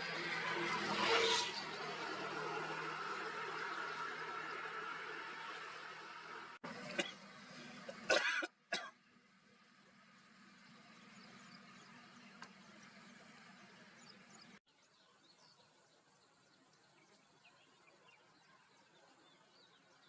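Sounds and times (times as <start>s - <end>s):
small birds chirping: 9.9s - 20.0s.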